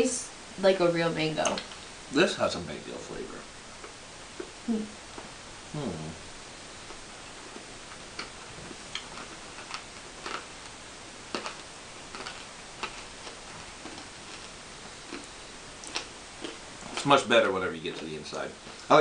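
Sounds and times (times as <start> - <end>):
hard candy crunching: 8.2 - 19.0.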